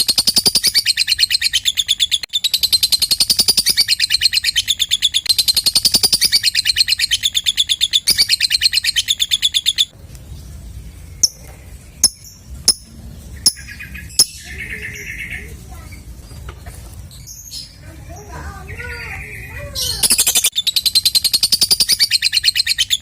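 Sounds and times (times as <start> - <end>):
bird chattering trill: 0.0 - 10.0, 11.1 - 23.0
sharp bird chirps: 0.0 - 16.5, 18.7 - 23.0.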